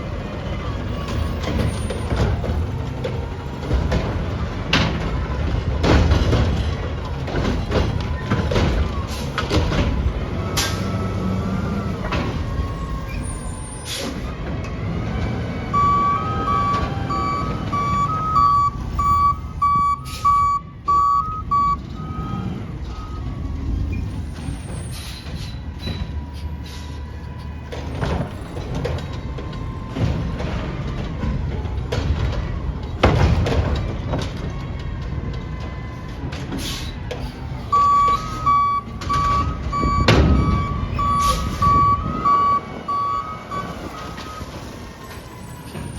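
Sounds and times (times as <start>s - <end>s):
truck engine running: 0.0s - 45.9s
truck reversing alarm beeping: 0.0s - 45.9s
reversing alarm beeping: 10.4s - 13.9s, 15.7s - 24.2s, 37.7s - 45.9s
fainter higher beep: 15.8s - 22.4s.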